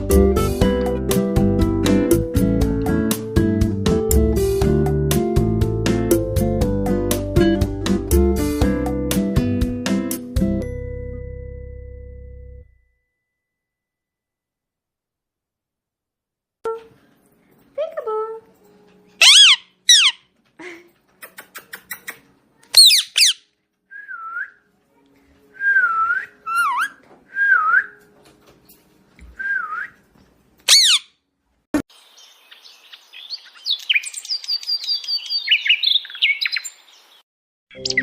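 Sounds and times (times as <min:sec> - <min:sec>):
parrot screeching: 0:19.2 - 0:20.2, 0:22.8 - 0:23.4, 0:26.5 - 0:27.0, 0:30.7 - 0:31.1
parrot whistling: 0:19.2 - 0:20.2, 0:22.8 - 0:23.4, 0:25.7 - 0:28.0, 0:30.7 - 0:31.1
parrot chirping and twittering: 0:19.2 - 0:20.3, 0:21.2 - 0:23.4, 0:26.5 - 0:27.0, 0:30.6 - 0:31.1, 0:32.0 - 0:36.9.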